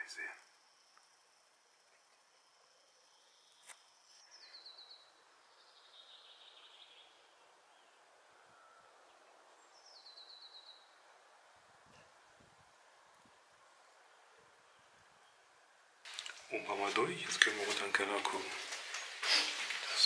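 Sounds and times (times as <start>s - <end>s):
faint songbird trills: 2.8s - 11.0s.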